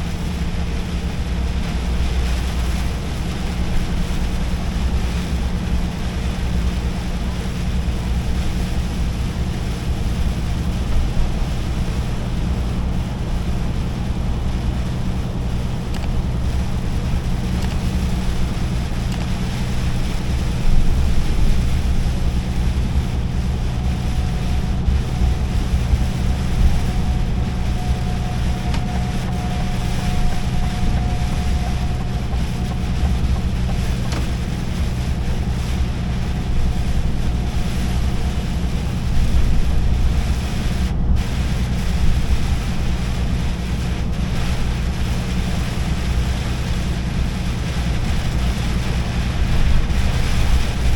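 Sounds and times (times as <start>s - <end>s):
faint steady whine: 0.0s - 50.9s
road and wind noise: 0.0s - 50.9s
truck engine drone: 0.0s - 50.9s.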